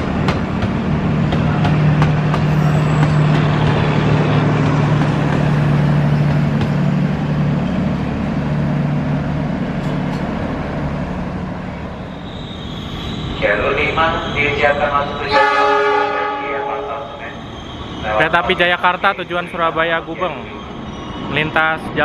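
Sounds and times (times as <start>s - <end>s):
train wheels clacking over rail joints: 0.0s - 6.9s
train coaches rumbling past: 0.0s - 22.0s.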